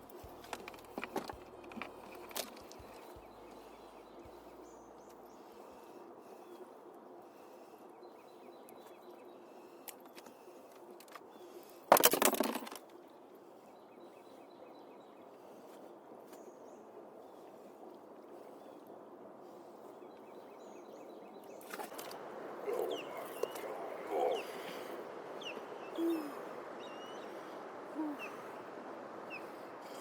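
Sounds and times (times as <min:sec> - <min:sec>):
faint bird chirps: 0:19.5 - 0:28.7.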